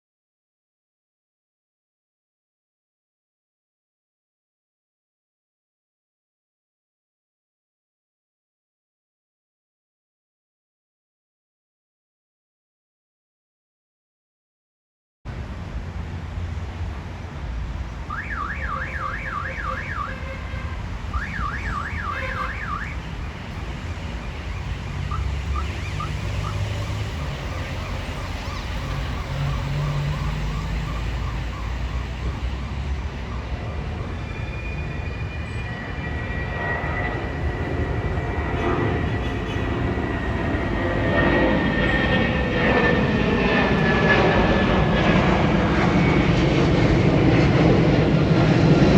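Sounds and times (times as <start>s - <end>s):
jet airliner rumble: 15.3s - 48.9s
high steady whine: 16.4s - 38.3s
warbling electronic alarm: 18.1s - 20.4s, 21.1s - 23.1s, 24.5s - 32.8s.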